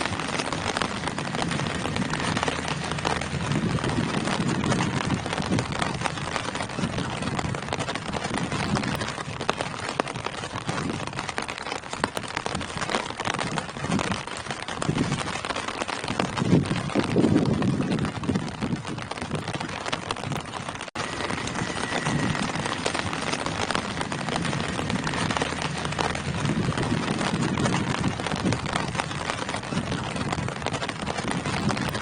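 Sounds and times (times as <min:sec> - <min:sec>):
low rumble: 0:00.0 - 0:09.7, 0:20.2 - 0:32.0
rain falling on foliage: 0:00.0 - 0:32.0.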